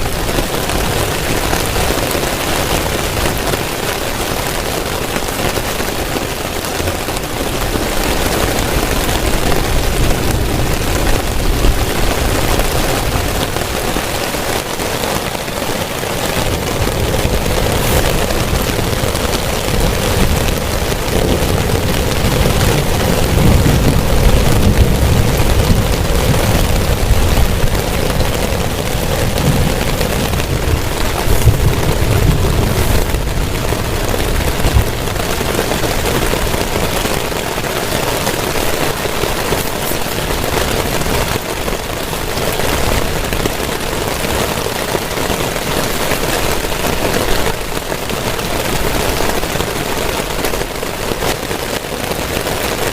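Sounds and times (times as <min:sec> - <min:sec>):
heavy rain pouring: 0:00.0 - 0:52.9
deep low rumble: 0:16.4 - 0:35.5.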